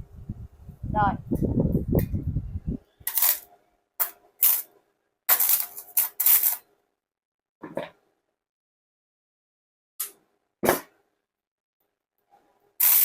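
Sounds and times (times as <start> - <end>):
welding arc crackling bursts: 3.0 - 4.7, 5.3 - 6.6, 12.8 - 13.0.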